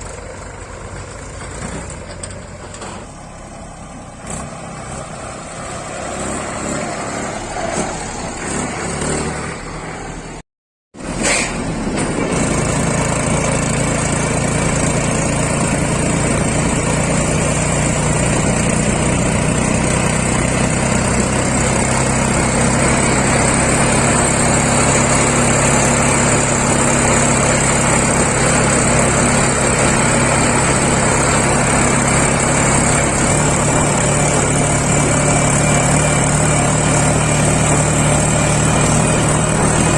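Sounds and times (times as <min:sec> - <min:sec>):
diesel engine humming: 0:00.0 - 0:10.4, 0:11.0 - 0:39.9.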